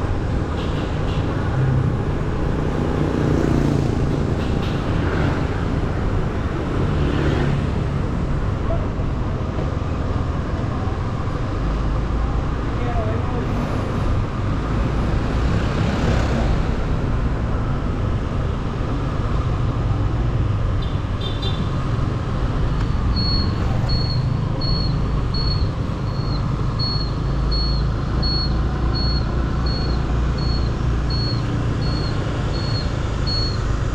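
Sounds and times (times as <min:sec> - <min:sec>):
road and wind noise: 0:00.0 - 0:33.9
high electronic beep: 0:23.1 - 0:33.7.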